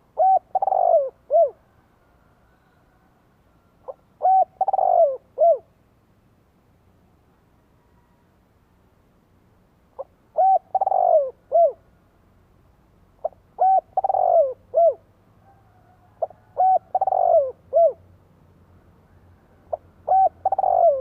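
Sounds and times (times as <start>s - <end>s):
dove cooing: 0.0s - 1.7s, 3.8s - 5.7s, 10.0s - 11.8s, 13.2s - 18.1s, 19.6s - 21.0s.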